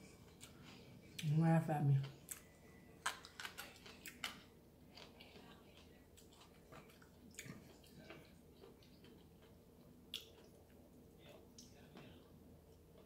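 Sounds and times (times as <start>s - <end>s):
chewing: 0.2s - 1.3s, 2.0s - 13.0s.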